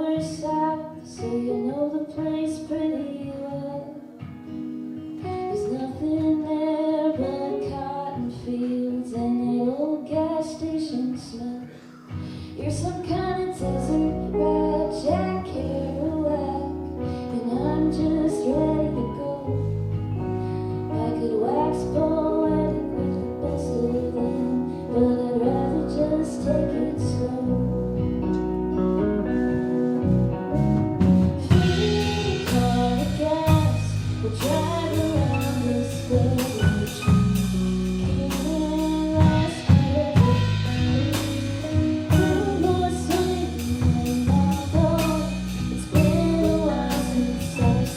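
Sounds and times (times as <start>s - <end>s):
person singing: 5.4s - 19.7s, 20.9s - 27.8s, 31.2s - 47.9s
rock band playing live: 12.1s - 47.9s.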